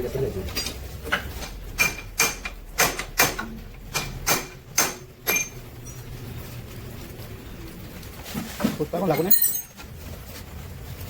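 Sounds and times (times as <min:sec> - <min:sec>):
metal tools clinking and knocking: 0:05.2 - 0:06.0, 0:09.1 - 0:09.8.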